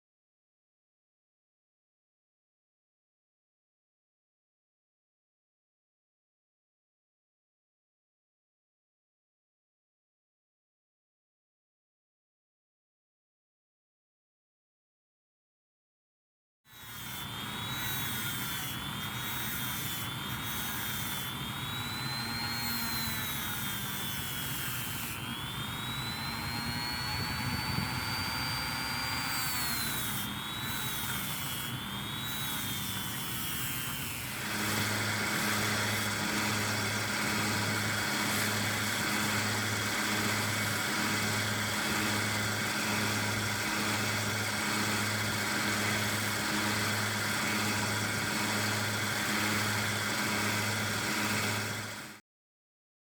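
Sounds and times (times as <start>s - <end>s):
rotary tool whine: 16.7s - 52.2s.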